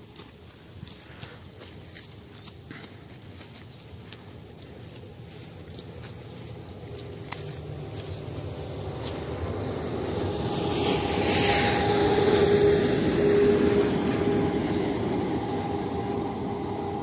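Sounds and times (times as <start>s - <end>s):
engine passing by: 4.6s - 17.0s.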